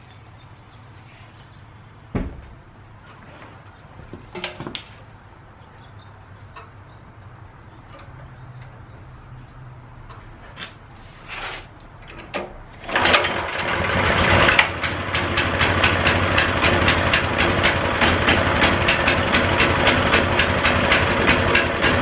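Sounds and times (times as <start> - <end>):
pressure washer knocks and clicks: 2.2 - 2.6.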